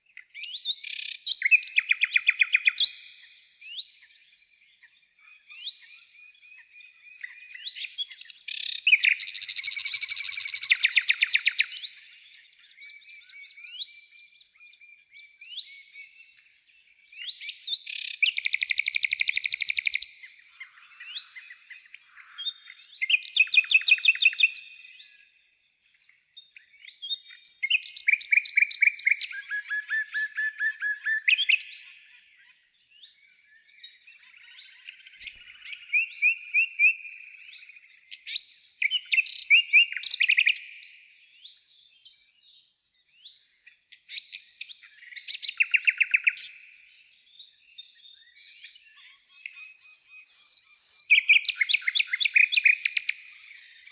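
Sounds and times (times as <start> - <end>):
songbird singing: 0.0 - 53.9.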